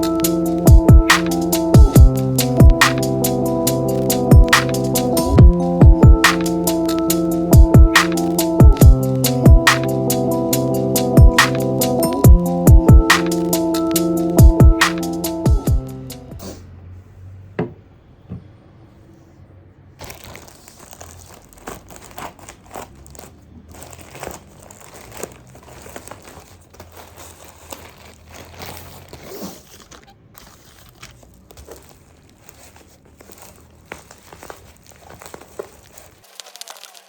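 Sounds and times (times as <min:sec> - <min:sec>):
packaging crinkling and rustling: 0:02.3 - 0:08.8, 0:20.0 - 0:37.0
packaging tearing: 0:20.0 - 0:37.0.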